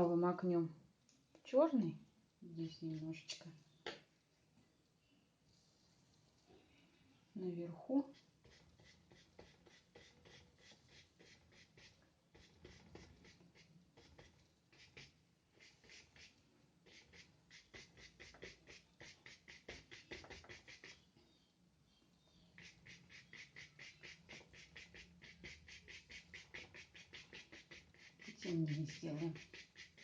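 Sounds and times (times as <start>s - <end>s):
paintbrush strokes on paper: 2.6s - 3.5s, 5.4s - 21.1s, 22.4s - 30.0s.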